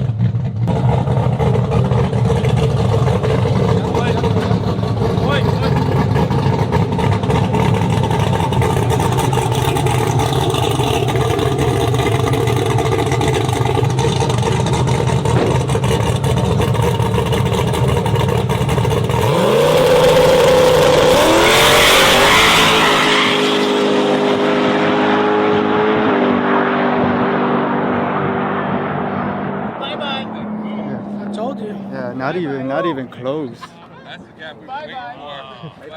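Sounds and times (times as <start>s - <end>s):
truck engine revving and accelerating: 0.0s - 34.4s
truck engine idling: 0.1s - 19.3s.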